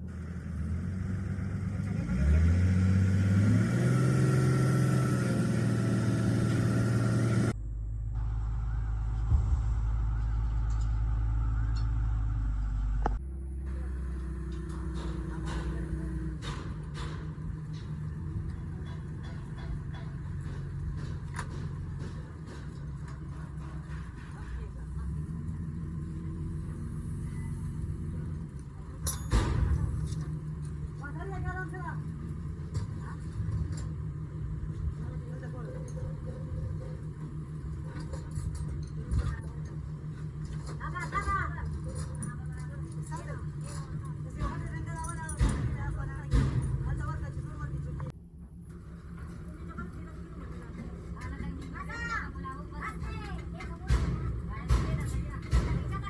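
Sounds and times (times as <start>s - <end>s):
truck engine revving: 0.0s - 56.0s
loud thump or clank: 9.2s - 9.8s, 29.1s - 30.2s, 45.3s - 47.0s.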